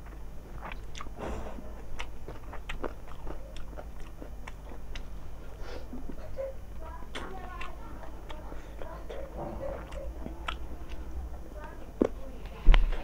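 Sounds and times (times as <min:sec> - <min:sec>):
person chewing food: 0:00.0 - 0:06.4, 0:07.1 - 0:12.2.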